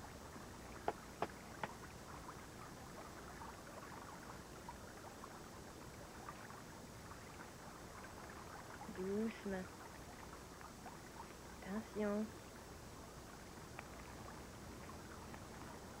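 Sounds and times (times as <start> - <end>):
water splashing and trickling: 0.0 - 16.0
small ticks: 0.7 - 2.2, 13.6 - 14.2, 15.1 - 15.8.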